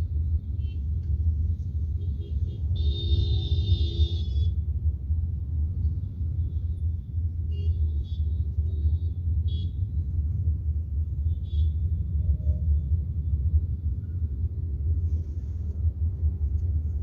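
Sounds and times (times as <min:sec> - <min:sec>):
vehicle rumble in traffic: 0:00.0 - 0:17.0
vehicle horn: 0:02.0 - 0:04.5.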